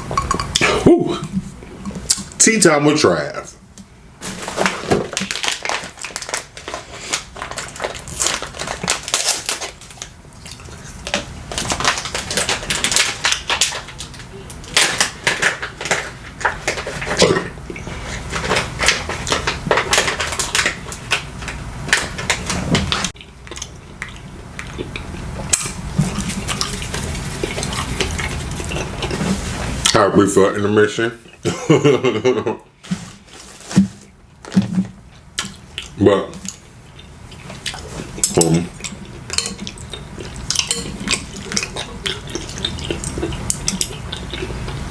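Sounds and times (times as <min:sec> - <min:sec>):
chewing: 0:22.9 - 0:30.0, 0:35.4 - 0:44.8
cutlery clicking and scraping dishes: 0:39.3 - 0:39.8, 0:40.5 - 0:41.8.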